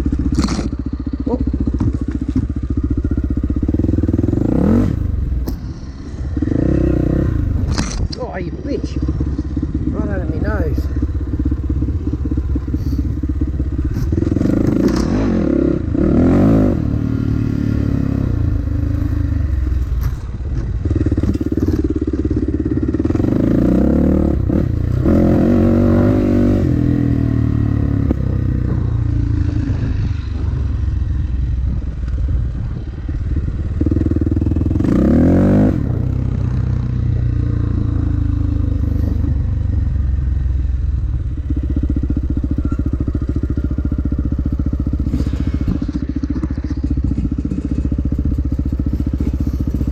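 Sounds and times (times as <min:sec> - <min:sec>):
dirt bike engine revving: 0:00.0 - 0:19.4, 0:20.8 - 0:30.6, 0:33.8 - 0:39.2.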